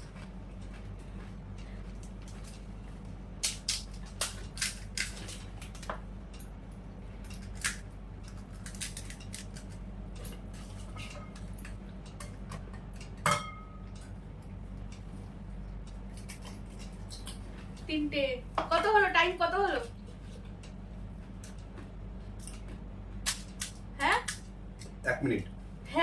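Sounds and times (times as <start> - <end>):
steady low hum: 0.0 - 26.0
crisp shells crackling and crunching: 1.9 - 5.9, 7.2 - 9.9
dishes handled: 12.1 - 13.9.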